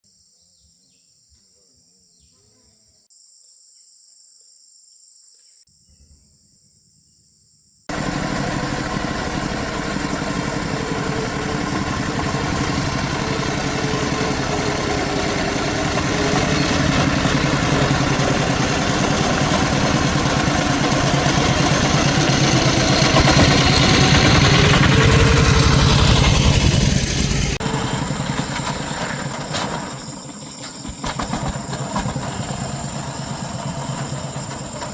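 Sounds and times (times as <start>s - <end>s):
faint high insect-like tones: 0.0s - 7.9s
loud engine running: 7.9s - 34.9s.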